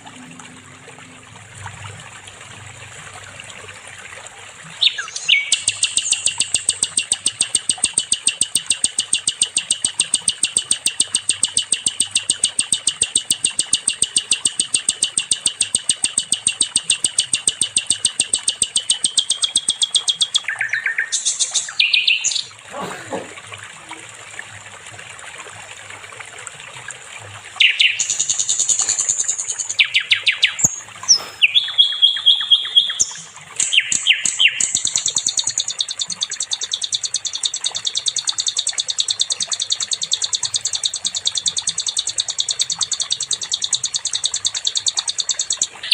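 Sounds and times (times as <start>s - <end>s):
songbird trilling and whistling: 4.8s - 22.6s, 27.6s - 45.9s.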